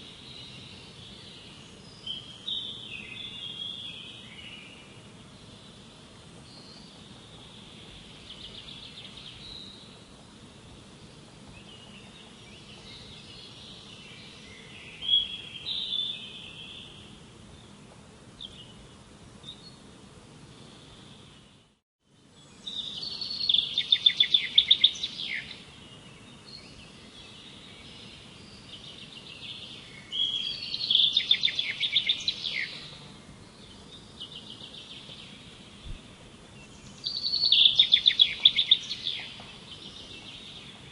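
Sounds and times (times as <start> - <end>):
songbirds singing: 0.0 - 40.9
steady outdoor hiss: 0.0 - 40.9
loud rapid trilled bird songs: 22.5 - 36.0, 36.6 - 40.9.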